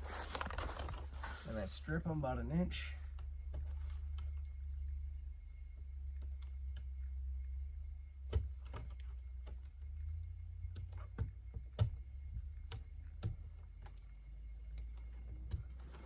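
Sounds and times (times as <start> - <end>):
steady low rumble: 0.0 - 16.0
wire strippers clicking and snipping: 8.3 - 16.0.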